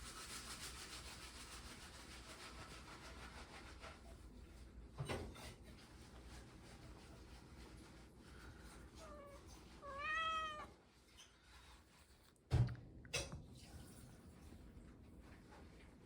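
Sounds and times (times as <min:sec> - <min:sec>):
cat meowing: 0:09.0 - 0:10.8.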